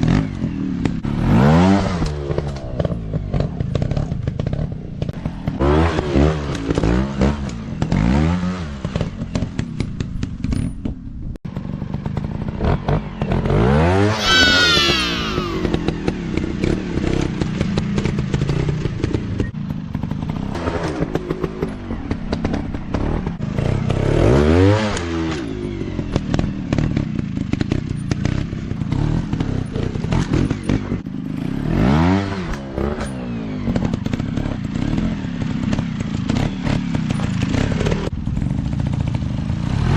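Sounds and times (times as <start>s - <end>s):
dirt bike engines revving: 12.1s - 19.5s.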